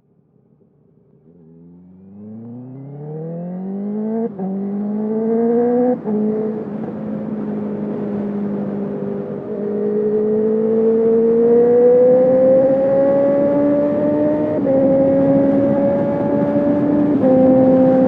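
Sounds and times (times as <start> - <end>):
motorcycle engine accelerating hard: 1.2 - 18.0.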